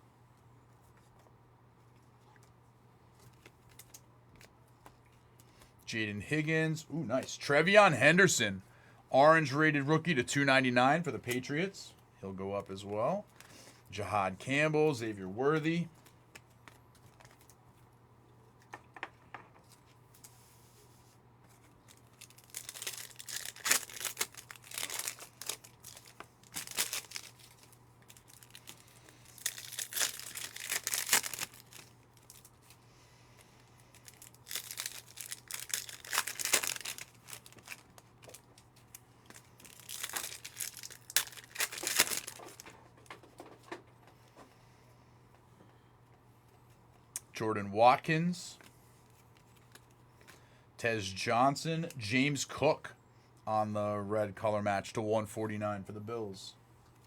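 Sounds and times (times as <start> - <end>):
card pack wrappers ripping: 21.8 - 32.8, 33.7 - 42.7.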